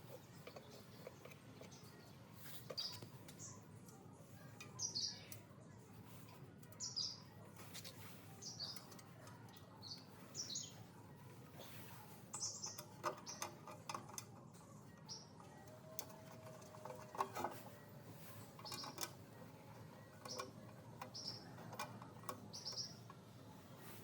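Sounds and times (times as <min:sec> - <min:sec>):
small bird chirping: 0:00.0 - 0:03.7, 0:04.5 - 0:05.7, 0:06.7 - 0:10.9, 0:11.6 - 0:13.8, 0:14.5 - 0:15.6, 0:17.4 - 0:19.2, 0:19.8 - 0:23.8.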